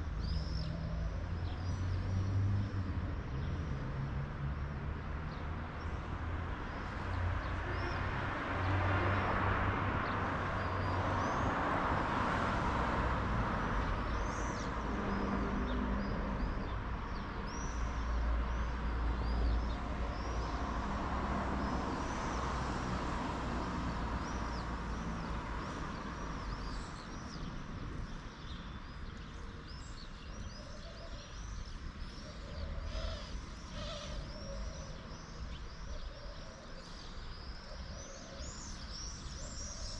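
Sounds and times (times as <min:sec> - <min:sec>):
small birds chirping: 0:13.8 - 0:20.9, 0:23.8 - 0:39.9.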